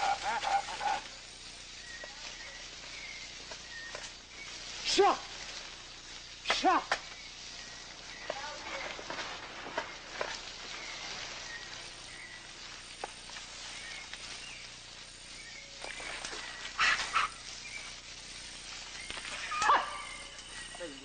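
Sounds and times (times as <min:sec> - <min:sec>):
insect hiss: 0:00.0 - 0:21.0
loud animal cries: 0:16.8 - 0:17.5, 0:19.4 - 0:20.4.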